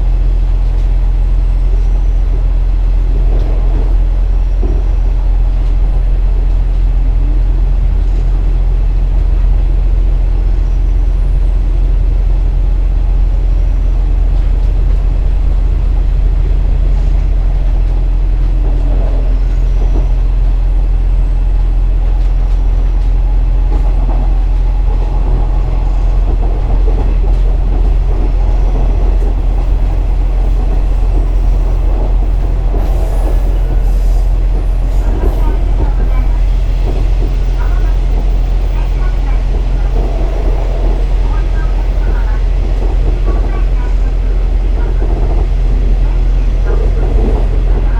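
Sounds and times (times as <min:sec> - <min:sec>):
diesel engine drone: 0:00.0 - 0:47.9
train wheels rumbling on track: 0:00.0 - 0:47.9.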